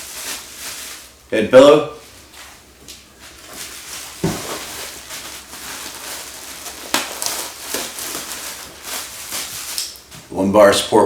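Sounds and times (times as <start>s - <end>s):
packaging rustling: 0.0s - 1.2s, 3.0s - 10.3s.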